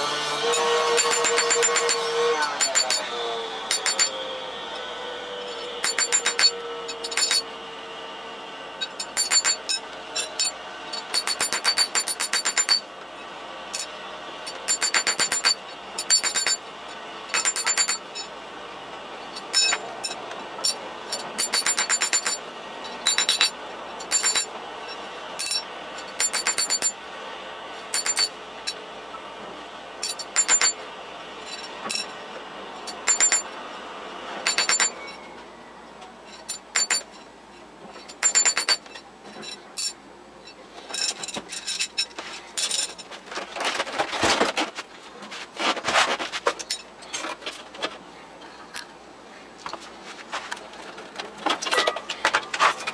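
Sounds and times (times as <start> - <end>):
high-pitched metallic ringing: 0.5 - 7.7, 8.7 - 18.4, 19.2 - 27.0, 27.9 - 28.8, 30.0 - 32.2, 32.8 - 33.6, 34.4 - 35.6, 36.3 - 37.3, 38.1 - 43.0.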